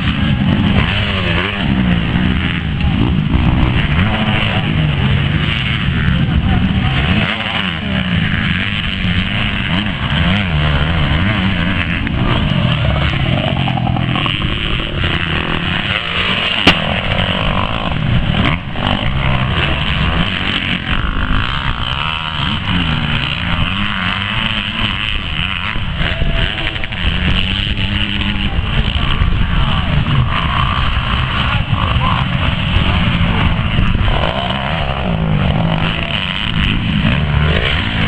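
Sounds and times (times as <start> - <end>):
sharp crack: 0.0 - 27.1
motorcycle engines revving: 0.0 - 38.0.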